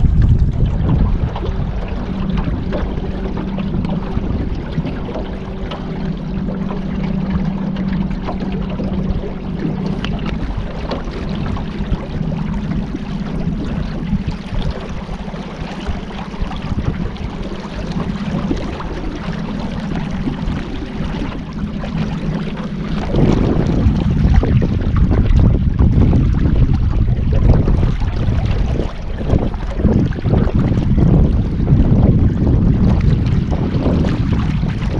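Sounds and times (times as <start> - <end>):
boat engine humming: 0.0 - 34.9
water rushing: 0.0 - 34.9
wind: 0.0 - 34.9.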